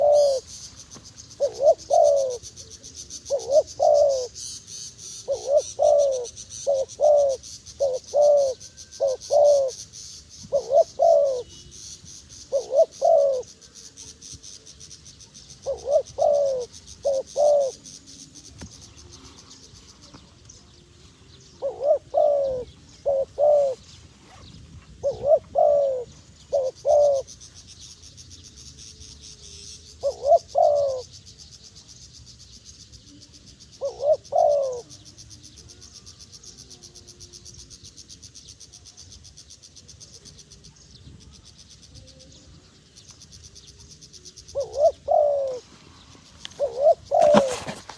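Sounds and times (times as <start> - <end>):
dove cooing: 0.0 - 4.4, 5.0 - 9.8, 10.4 - 11.7, 12.4 - 13.7, 15.5 - 27.4, 30.0 - 31.1, 33.8 - 35.0, 44.4 - 47.9.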